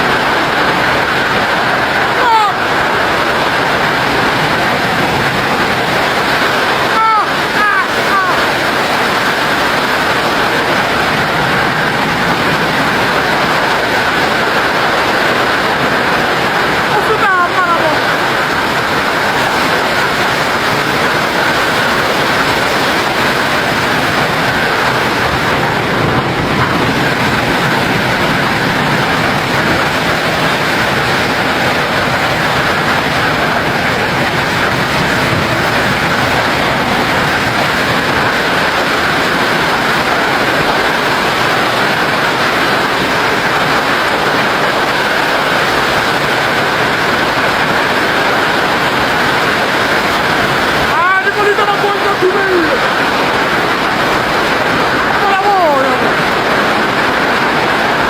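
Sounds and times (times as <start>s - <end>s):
hail and rain clattering: 0.0s - 58.0s.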